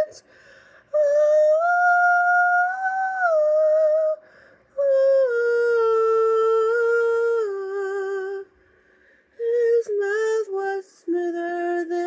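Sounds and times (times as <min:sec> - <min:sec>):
woman singing wordless notes: 0:00.0 - 0:00.3, 0:00.9 - 0:08.5, 0:09.4 - 0:12.0.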